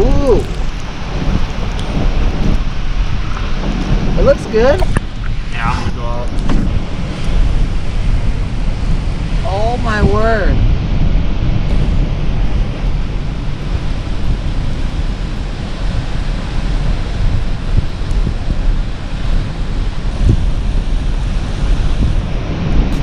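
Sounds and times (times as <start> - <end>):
surf breaking on shore: 0.0 - 23.0
wind buffeting microphone: 0.0 - 23.0.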